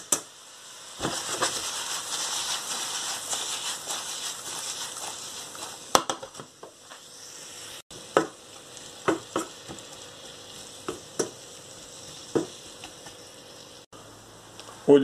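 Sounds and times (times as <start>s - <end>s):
vegetables sizzling in frying pan: 0.0s - 13.9s
wooden spatula knocking against pan: 9.0s - 9.8s, 10.9s - 11.4s.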